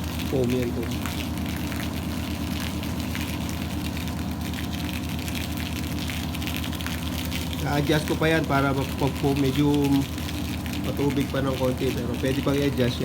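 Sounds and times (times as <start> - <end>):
foam spraying from nozzle: 0.0 - 13.0
pump motor humming: 0.0 - 13.0.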